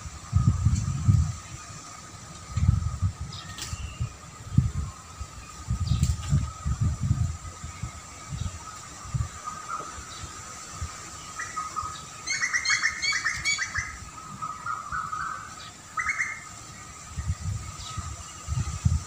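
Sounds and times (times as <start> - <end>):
songbirds chirping: 0.0 - 19.0.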